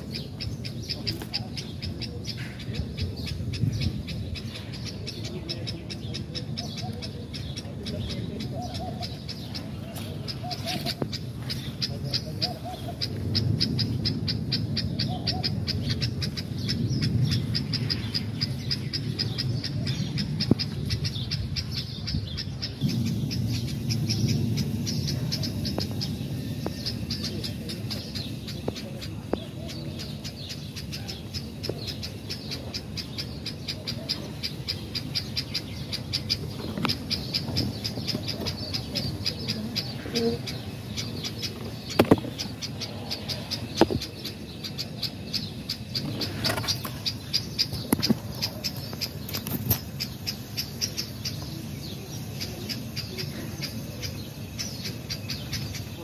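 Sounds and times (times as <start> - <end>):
wind rumble on microphone: 0.0 - 6.4, 7.6 - 30.3
birds chirping fast: 0.0 - 56.0.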